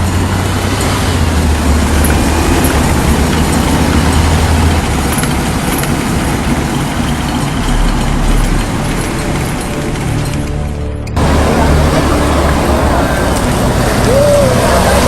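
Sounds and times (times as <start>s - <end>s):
heavy vehicle engine rumble: 0.0s - 15.0s.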